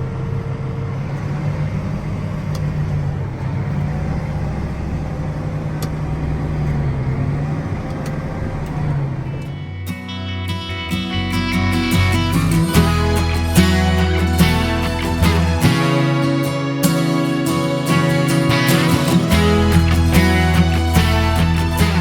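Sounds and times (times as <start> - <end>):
tractor engine droning: 0.0 - 22.0.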